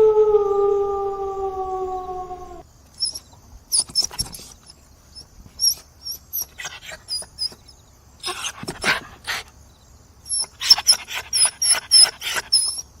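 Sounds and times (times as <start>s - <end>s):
dog whimpering squeaks: 3.0s - 4.5s, 5.6s - 8.6s, 10.3s - 13.0s
dog panting: 3.8s - 9.6s, 10.3s - 13.0s.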